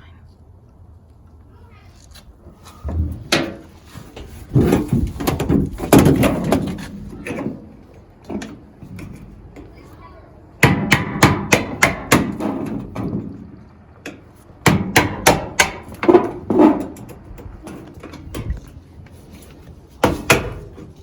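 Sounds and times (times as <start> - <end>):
hammer on sheet metal: 10.6 - 12.7, 14.6 - 16.3.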